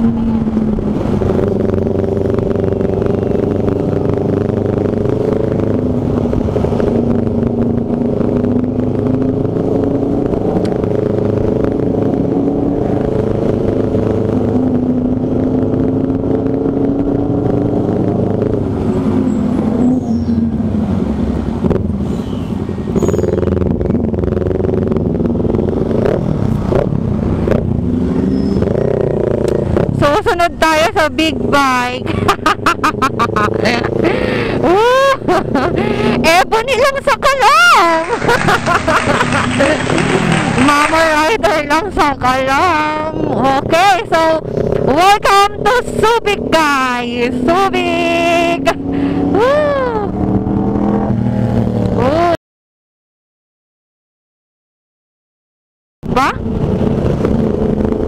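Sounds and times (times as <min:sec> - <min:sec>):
wind rushing over microphone: 0:00.0 - 0:32.2, 0:56.1 - 0:58.0
motorcycle engine running: 0:00.0 - 0:52.3.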